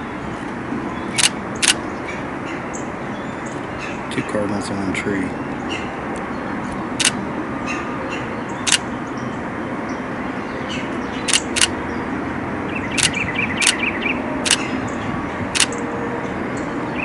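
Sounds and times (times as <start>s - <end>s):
camera shutter clicks: 1.2s - 1.8s, 11.3s - 11.8s, 13.0s - 13.8s.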